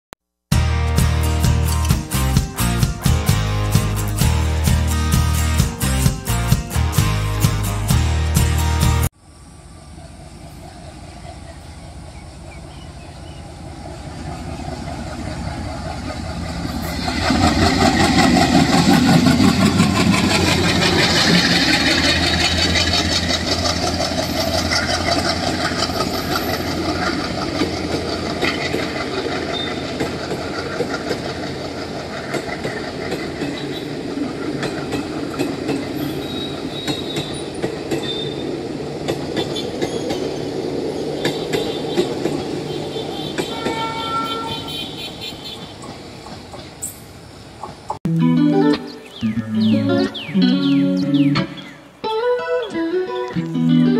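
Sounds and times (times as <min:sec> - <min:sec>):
diesel locomotive chugging: 0:00.5 - 0:48.0, 0:48.6 - 0:52.0
wheels clacking over rail joints: 0:13.8 - 0:48.0.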